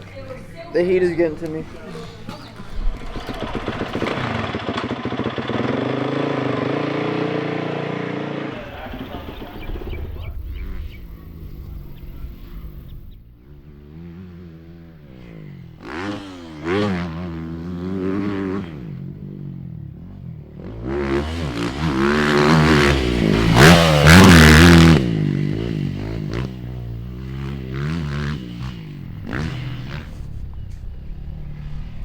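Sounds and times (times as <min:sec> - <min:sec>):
dirt bike engine revving: 0:02.6 - 0:32.0.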